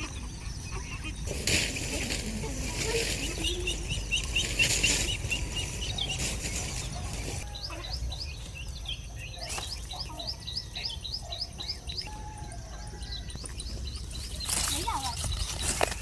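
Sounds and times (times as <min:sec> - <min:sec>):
small bird chirping: 0:00.0 - 0:16.0.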